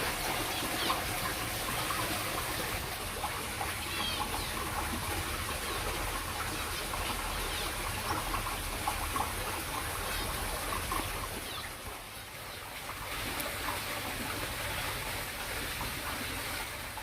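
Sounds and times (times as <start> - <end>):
small birds chirping: 0.3 - 2.8, 3.5 - 12.8.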